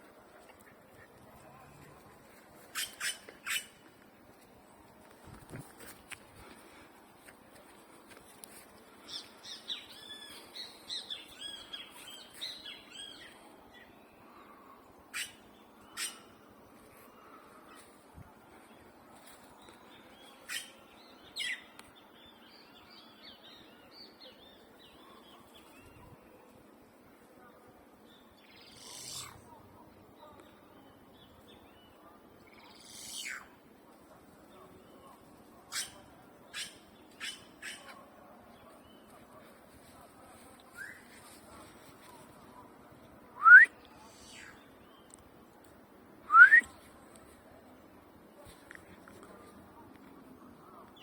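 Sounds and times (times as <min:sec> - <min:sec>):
faint bird chirping: 0:28.1 - 0:33.6.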